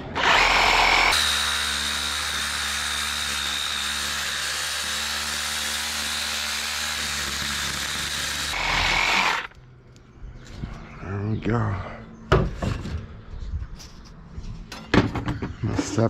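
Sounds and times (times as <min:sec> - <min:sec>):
power drill whining: 0:00.0 - 0:09.6.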